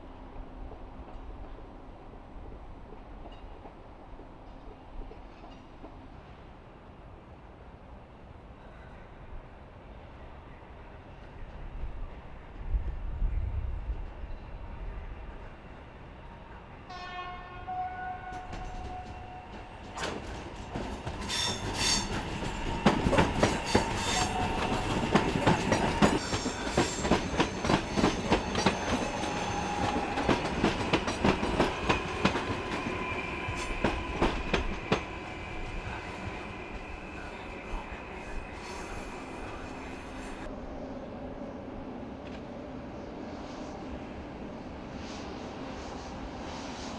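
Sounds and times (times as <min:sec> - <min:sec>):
train horn blast: 0:16.9 - 0:19.7
train wheels clattering: 0:18.4 - 0:35.2.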